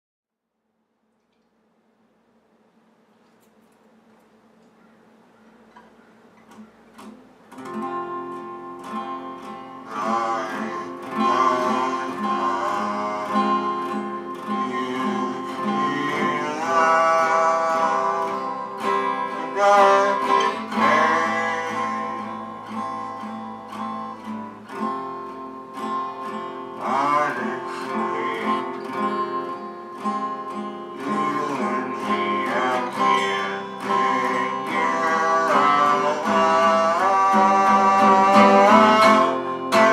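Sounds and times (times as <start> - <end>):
person singing: 9.4 - 23.2, 26.7 - 29.7, 30.8 - 39.9.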